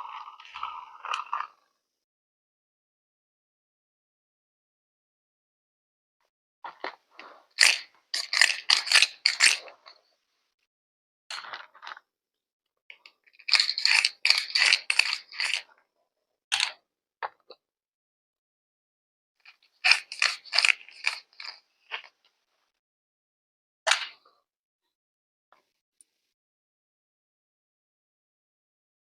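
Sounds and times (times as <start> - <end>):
crisp crunching and scraping handling: 6.8 - 10.0, 13.4 - 15.6, 19.8 - 22.1.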